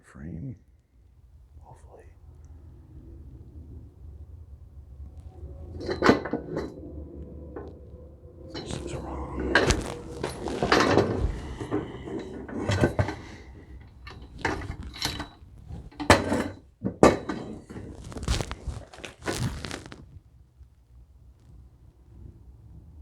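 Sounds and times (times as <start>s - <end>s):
metal parts knocking and clanking: 9.6s - 17.8s.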